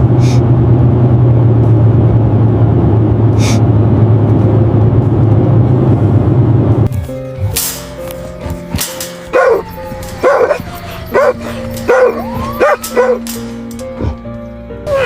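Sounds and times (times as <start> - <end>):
vehicle engine rumbling: 0.0 - 14.9.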